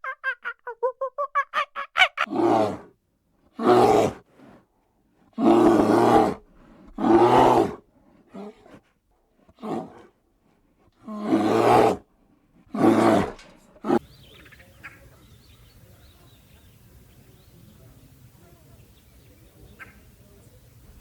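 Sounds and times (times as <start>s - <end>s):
donkey braying: 0.0s - 2.8s, 3.6s - 4.6s, 5.4s - 8.8s, 9.5s - 10.1s, 10.7s - 14.1s.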